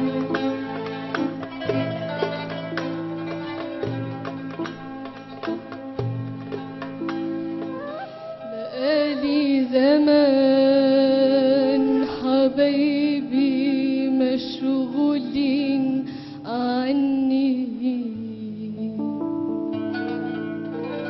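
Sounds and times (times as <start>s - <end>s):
instrumental backing: 0.0s - 17.5s, 18.8s - 21.0s
person singing with vibrato: 7.8s - 18.9s.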